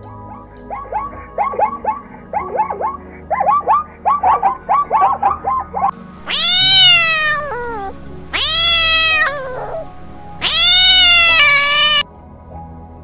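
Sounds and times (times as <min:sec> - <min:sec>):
cat meowing: 0:06.2 - 0:12.0.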